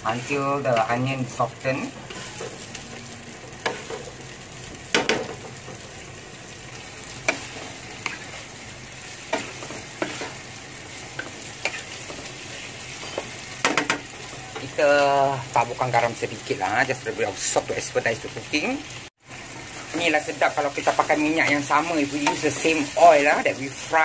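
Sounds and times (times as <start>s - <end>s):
wooden spatula scraping a pan: 0.0s - 1.3s, 1.9s - 4.3s, 7.1s - 14.8s
vegetables sizzling in oil: 0.0s - 24.0s.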